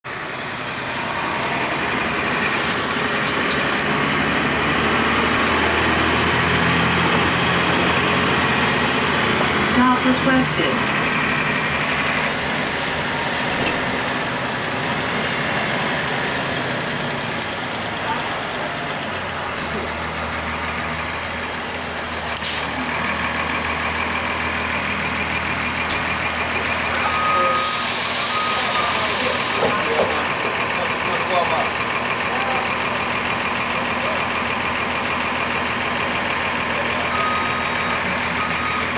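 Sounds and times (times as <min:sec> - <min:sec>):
diesel bus engine humming: 0:00.0 - 0:38.9
air brake hiss: 0:22.4 - 0:22.8, 0:27.5 - 0:29.6
short beeps: 0:27.0 - 0:29.0.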